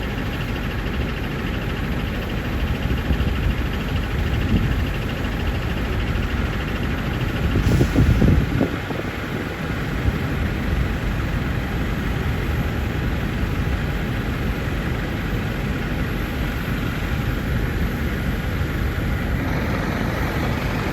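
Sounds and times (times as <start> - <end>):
jet engine rushing: 16.5 - 20.9.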